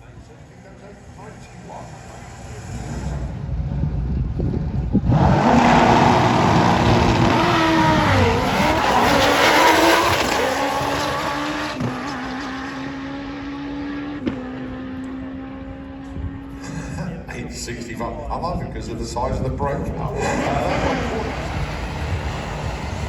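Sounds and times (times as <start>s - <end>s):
motorcycle engine at full throttle: 0.8s - 12.0s, 19.8s - 23.0s.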